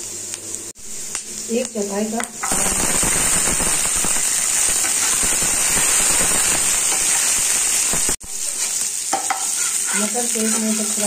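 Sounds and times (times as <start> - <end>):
peas frying with spattering pops: 0.0 - 11.0
spatula stirring in a pan: 8.0 - 11.0.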